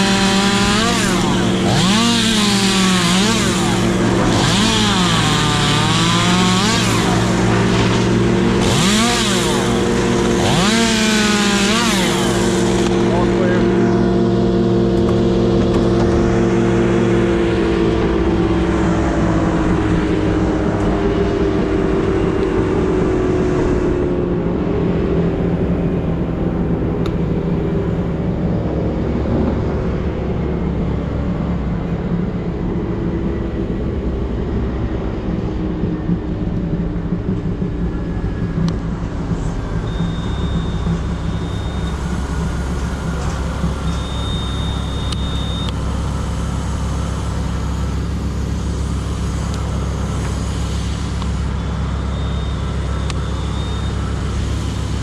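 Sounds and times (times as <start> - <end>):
engine running loudly: 0.0 - 55.0
short high steady tone: 39.8 - 46.0, 51.3 - 54.6.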